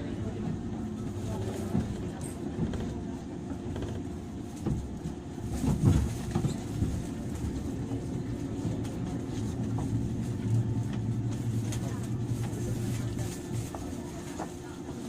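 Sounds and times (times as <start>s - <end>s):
electric train interior hum: 0.0s - 15.0s.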